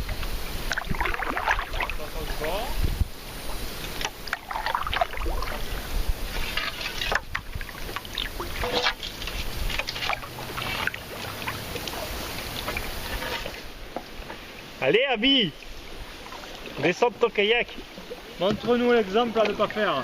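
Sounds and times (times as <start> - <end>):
paddles splashing in water: 0.0 - 20.0
water washing: 0.0 - 20.0.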